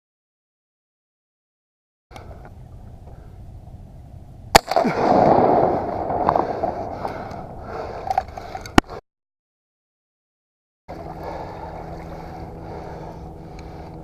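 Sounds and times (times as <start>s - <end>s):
shotgun shots: 4.5s - 6.8s.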